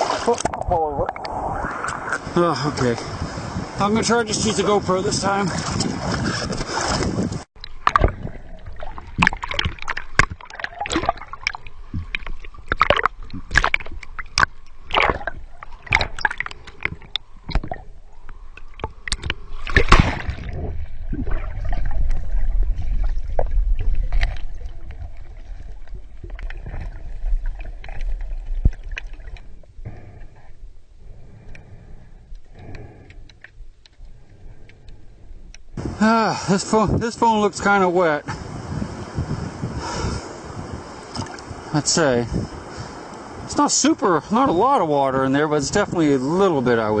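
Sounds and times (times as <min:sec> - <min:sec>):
water splashing and gurgling: 0:00.0 - 0:30.4, 0:35.8 - 0:47.0
underwater rumble: 0:00.0 - 0:36.0.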